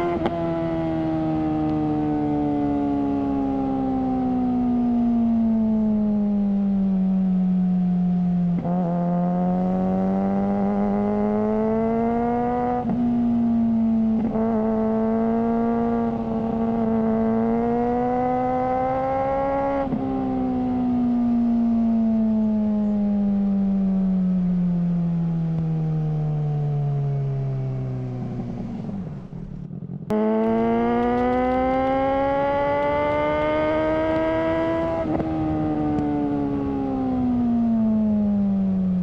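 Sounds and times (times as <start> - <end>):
motorcycle engine running: 28.1 - 39.0.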